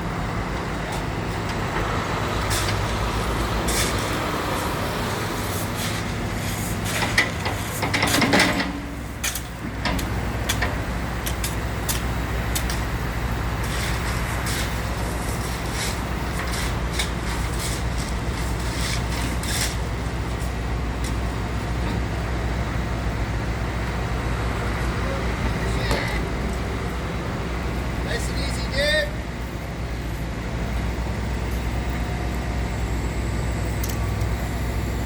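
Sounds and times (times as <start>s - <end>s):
diesel engine running: 0.0s - 35.0s
scraping clatter: 13.6s - 20.5s.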